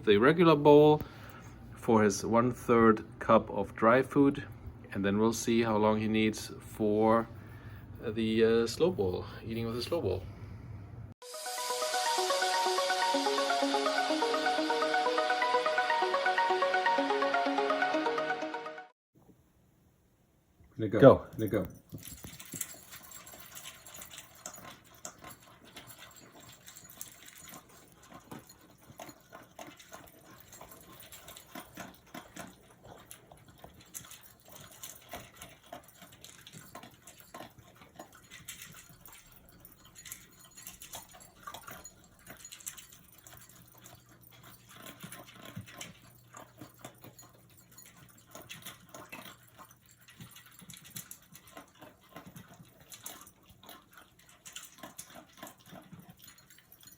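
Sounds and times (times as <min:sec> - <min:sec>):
dog crunching dry kibble: 0:21.5 - 0:56.9.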